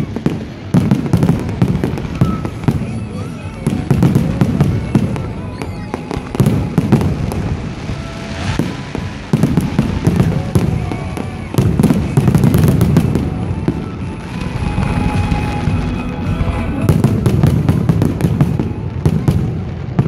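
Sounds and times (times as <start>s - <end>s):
fireworks bangs and crackles: 0.0s - 20.0s
low rumble: 6.1s - 20.0s.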